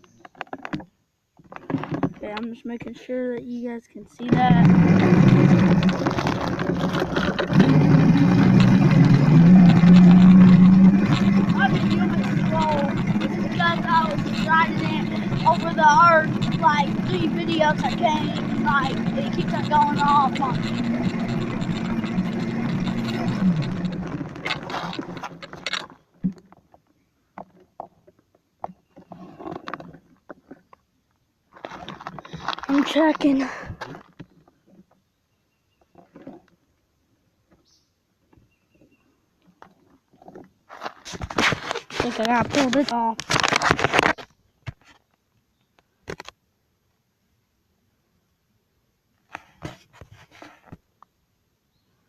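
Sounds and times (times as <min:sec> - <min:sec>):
rough riding noise: 0:00.0 - 0:26.6, 0:31.5 - 0:34.9, 0:39.7 - 0:45.0
wind: 0:00.0 - 0:52.0
rolling noise: 0:04.1 - 0:26.7
electric dirt bike motor hum: 0:04.2 - 0:25.8.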